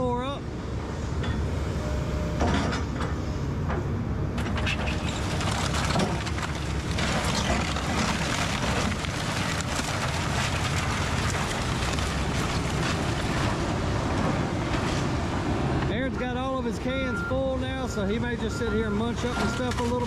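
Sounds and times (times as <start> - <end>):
excavator diesel engine running: 0.0 - 20.0
wood and brick crunching: 4.4 - 15.2, 19.1 - 20.0.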